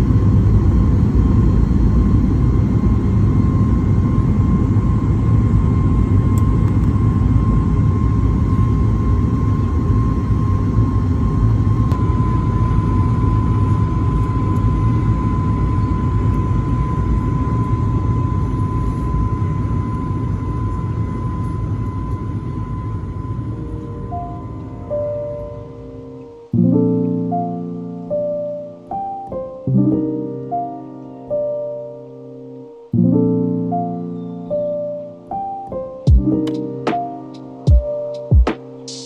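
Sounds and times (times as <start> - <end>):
high engine whine: 0.0 - 26.5
jet engine rumble: 0.0 - 28.9.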